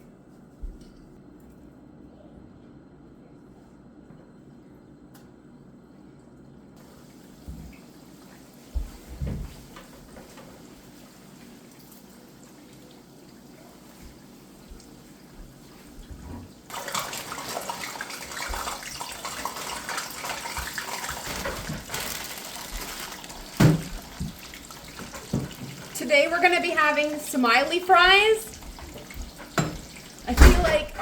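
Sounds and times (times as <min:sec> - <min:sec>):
hot oil sizzling and crackling: 0:16.7 - 0:26.0, 0:28.4 - 0:30.3.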